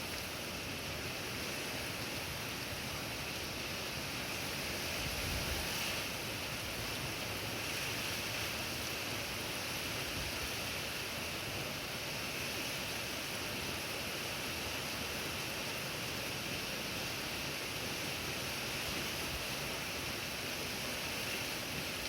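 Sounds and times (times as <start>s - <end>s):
heavy rain: 0.0s - 22.0s
strong wind: 4.5s - 9.0s.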